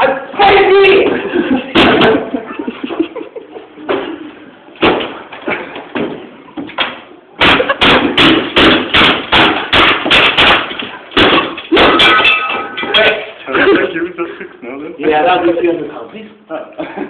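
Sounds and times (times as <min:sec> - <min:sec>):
loud rapid banging: 0:07.4 - 0:13.2.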